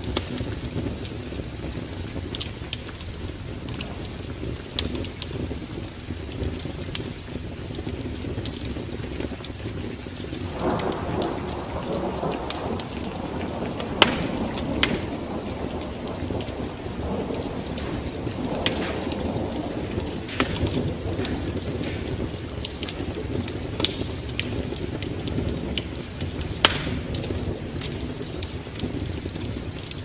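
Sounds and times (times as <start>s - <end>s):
log fire crackling and popping: 0.0s - 30.0s
broad rushing noise: 10.5s - 23.3s.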